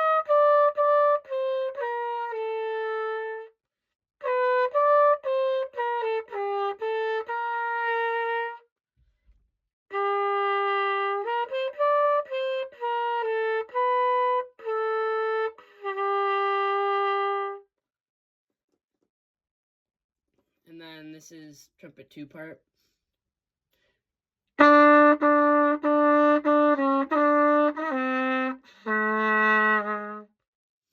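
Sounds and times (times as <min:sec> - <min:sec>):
cornet playing melody: 0:00.0 - 0:03.5, 0:04.2 - 0:08.6, 0:09.9 - 0:17.6, 0:24.6 - 0:30.4.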